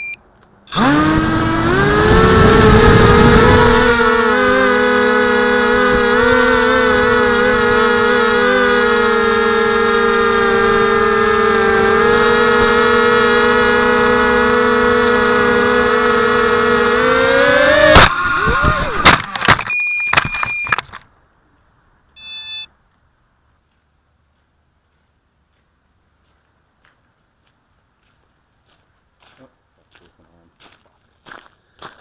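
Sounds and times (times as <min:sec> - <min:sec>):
short beep: 0:00.0 - 0:00.8, 0:19.6 - 0:20.8, 0:22.2 - 0:22.7
drone motors whining: 0:00.0 - 0:20.9.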